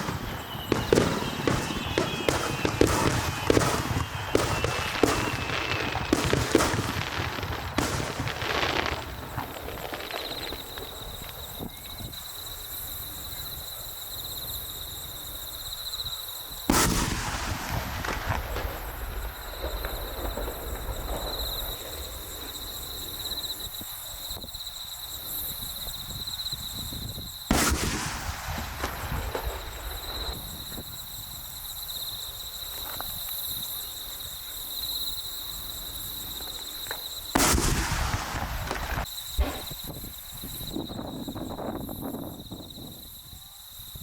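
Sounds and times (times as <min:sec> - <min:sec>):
firework shell bursts: 0:00.0 - 0:10.6
firework crackling: 0:00.0 - 0:11.7, 0:16.7 - 0:24.4, 0:27.5 - 0:33.3, 0:34.2 - 0:40.8.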